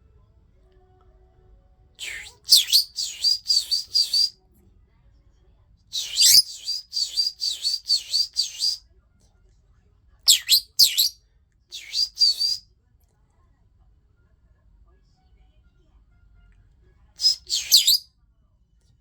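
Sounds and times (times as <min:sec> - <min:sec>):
lovebird high-pitched calls: 0:02.0 - 0:04.3, 0:06.0 - 0:08.8, 0:10.3 - 0:11.2, 0:11.8 - 0:12.6, 0:17.2 - 0:18.0.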